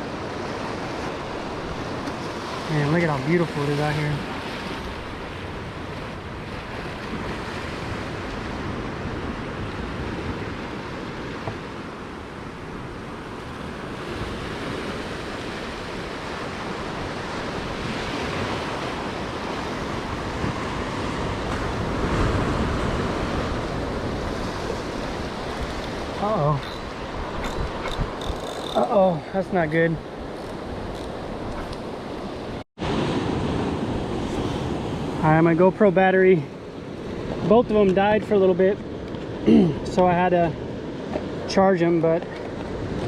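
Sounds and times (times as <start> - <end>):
wind on microphone: 0.0 - 28.9
surf washing against rocks: 0.0 - 43.0.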